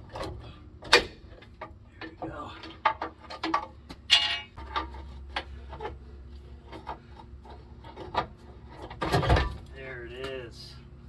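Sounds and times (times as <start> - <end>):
metal clanks: 0.0 - 6.0.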